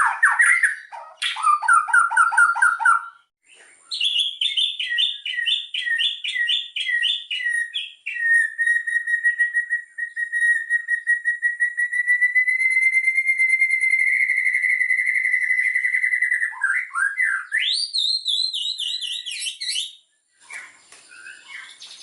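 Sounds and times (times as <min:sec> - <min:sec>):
fast even bird trill: 0:00.0 - 0:03.3
songbird singing varied phrases: 0:00.0 - 0:22.0
falling two-part whistles: 0:04.0 - 0:20.0.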